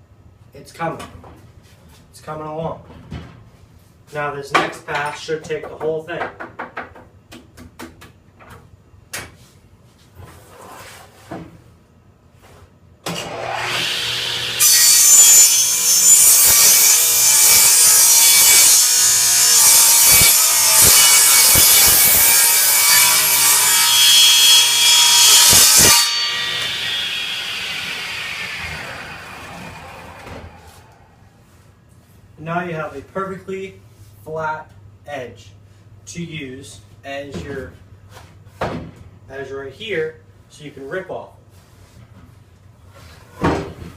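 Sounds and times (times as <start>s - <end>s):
saw blade cutting board: 13.1s - 31.0s
table saw running: 13.2s - 31.0s.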